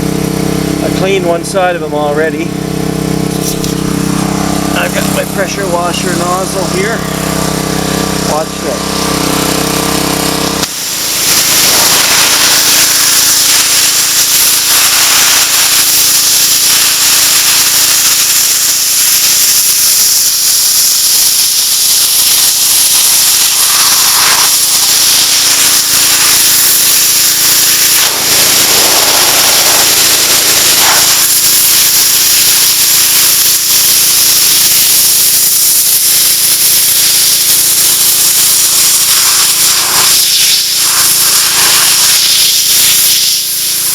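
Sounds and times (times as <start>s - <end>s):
pressure washer engine running: 0.0s - 43.9s
high-pressure water spraying: 2.8s - 43.9s.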